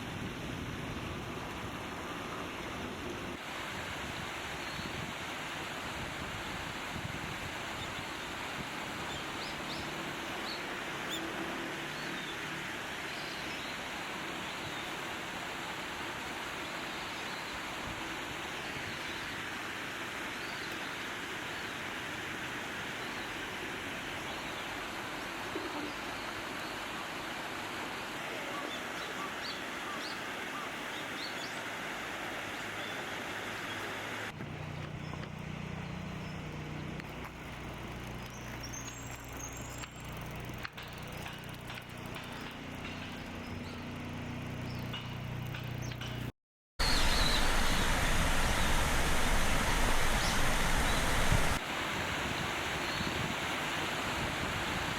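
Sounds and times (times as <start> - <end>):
small birds chirping: 34.7 - 46.2, 46.8 - 51.6
steady background noise: 39.8 - 51.6
low steady hum: 46.8 - 51.6.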